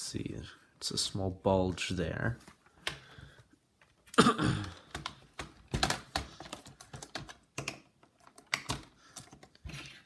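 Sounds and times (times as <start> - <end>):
plastic laptop casing clicks: 4.7 - 9.6.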